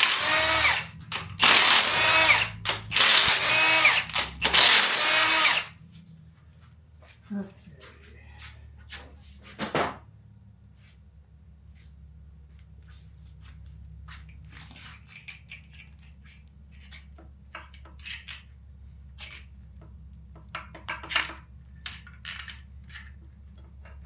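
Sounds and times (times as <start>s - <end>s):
metallic clinks and scrapes of tools: 14.2s - 19.8s, 20.4s - 24.0s.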